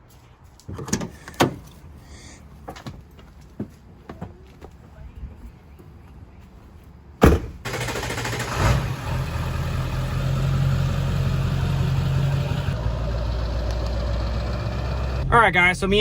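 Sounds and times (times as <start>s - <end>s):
loud thump: 7.2s - 7.6s
truck engine starting and idling: 7.2s - 16.0s.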